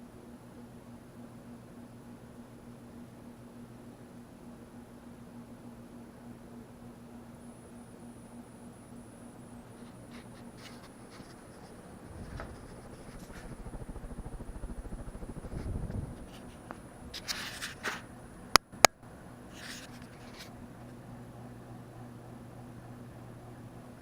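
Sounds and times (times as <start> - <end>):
ceiling fan motor hum: 0.0 - 24.0
rustling: 9.8 - 18.1
low rumbling: 11.5 - 17.2.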